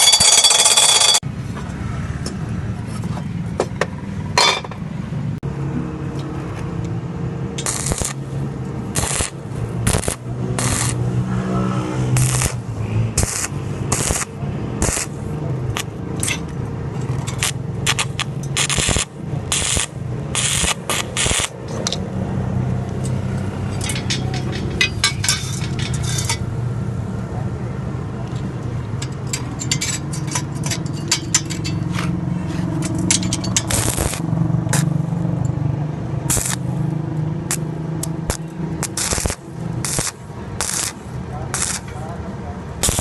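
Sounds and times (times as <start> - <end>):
arc welder crackle and hiss: 7.6 - 8.2, 8.9 - 11.1, 12.2 - 12.6, 13.2 - 15.2, 17.4 - 21.6, 33.7 - 34.9, 36.3 - 36.8, 37.5 - 42.0
welding machine mains hum: 7.6 - 8.3, 8.9 - 11.0, 12.2 - 12.6, 13.2 - 15.2, 17.4 - 21.6, 33.6 - 34.9, 36.3 - 36.8, 37.5 - 41.9, 42.8 - 43.0.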